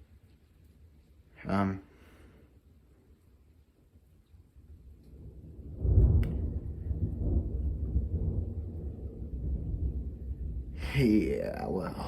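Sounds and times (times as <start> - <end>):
thunder rumbling: 4.6 - 12.0.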